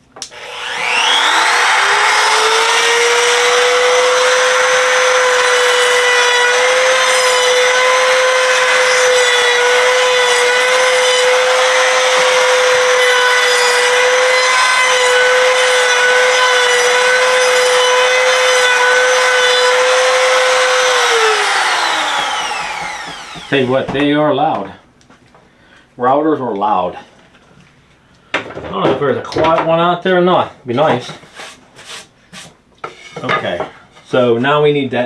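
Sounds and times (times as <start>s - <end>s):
electric router routing wood: 0.2s - 24.1s.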